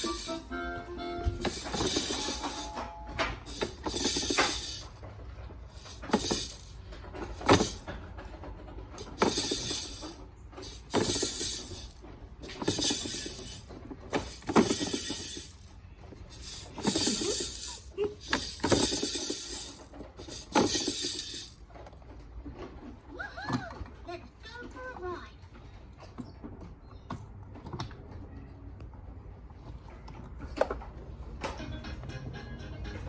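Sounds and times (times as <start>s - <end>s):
toy clattering and rattling: 0.0s - 24.8s.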